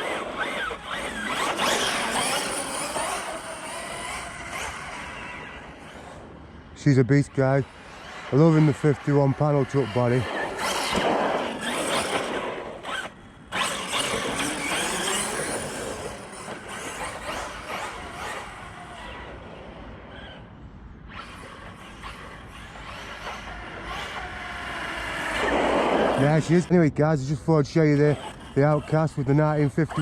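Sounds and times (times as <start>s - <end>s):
tyre and drivetrain noise: 0.0s - 6.2s, 6.8s - 20.4s
electric motor whining: 0.0s - 20.5s, 21.1s - 26.7s.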